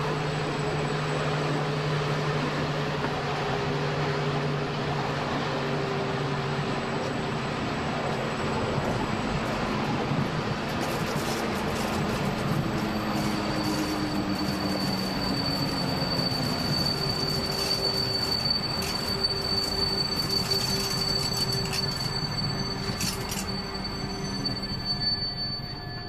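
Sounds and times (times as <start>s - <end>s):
high wheel squeal: 0.0s - 26.0s
train wheels rumbling on rail: 0.0s - 26.0s.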